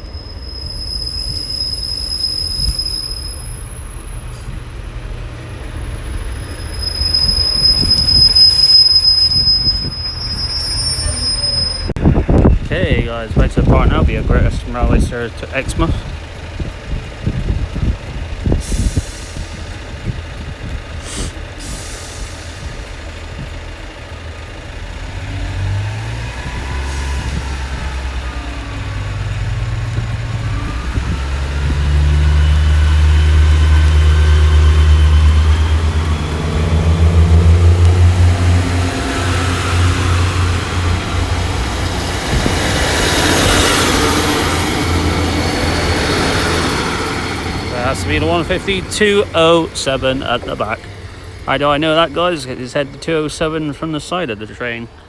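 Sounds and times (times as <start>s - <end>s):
hiss: 0.0s - 4.9s, 18.5s - 24.0s
faint squeal: 0.0s - 5.0s, 5.6s - 12.2s
diesel train engine: 0.0s - 55.0s.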